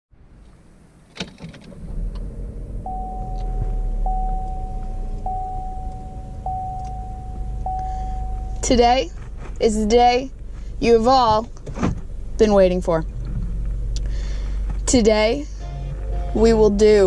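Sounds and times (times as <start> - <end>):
car engine rumbling: 0.1 - 17.0
car ignition click: 1.1 - 8.8
dashboard warning chime: 2.8 - 9.1, 15.3 - 17.0.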